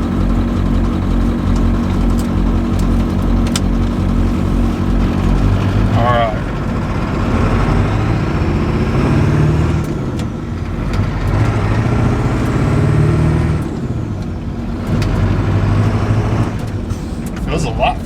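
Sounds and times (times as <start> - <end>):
faint high turbo whistle: 0.0 - 6.8
diesel engine accelerating hard: 0.0 - 18.0.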